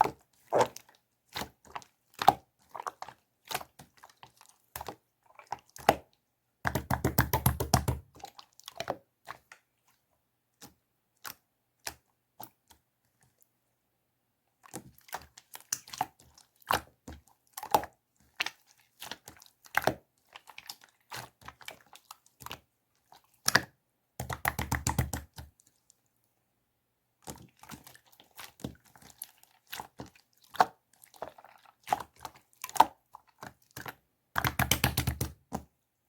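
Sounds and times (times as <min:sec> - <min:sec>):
sharp clicks and taps: 0:34.4 - 0:35.6.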